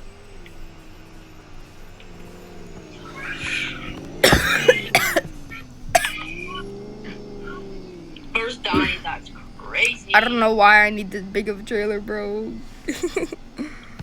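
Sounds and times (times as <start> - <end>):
steady low hum: 0.0 - 14.0
person coughing: 2.9 - 6.7, 8.7 - 9.3
person laughing: 3.2 - 6.6, 12.9 - 13.9.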